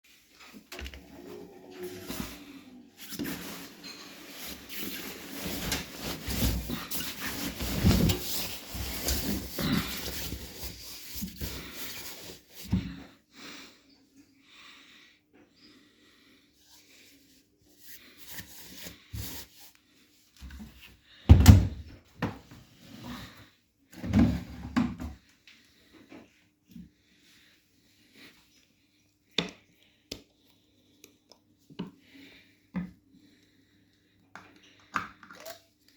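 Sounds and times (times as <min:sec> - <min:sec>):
handling rustle: 0:03.0 - 0:12.7.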